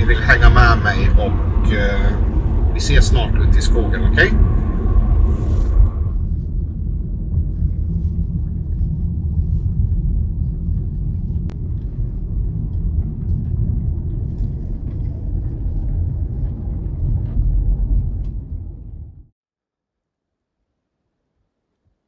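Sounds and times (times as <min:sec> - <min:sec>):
car road and engine rumble: 0:00.0 - 0:19.3.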